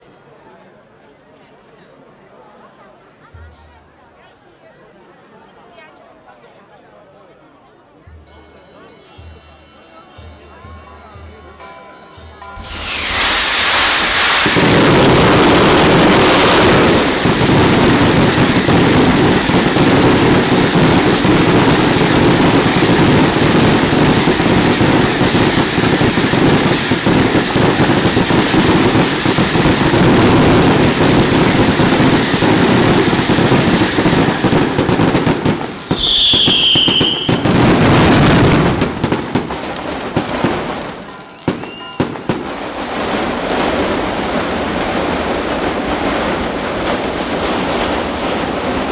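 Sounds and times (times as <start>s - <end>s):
firework whistle: 12.5s - 42.7s
fireworks bangs: 12.5s - 48.9s
firecrackers rattling: 12.6s - 48.9s.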